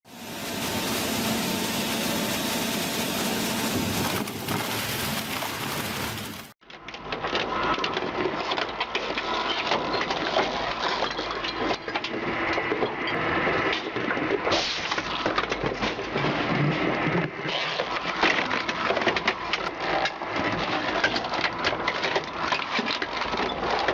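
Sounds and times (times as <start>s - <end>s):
heavy machinery running: 0.1s - 6.6s.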